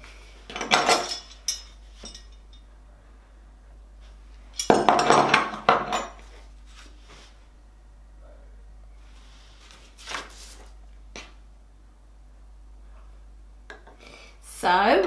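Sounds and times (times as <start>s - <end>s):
metal keys jingling: 0.6s - 2.6s.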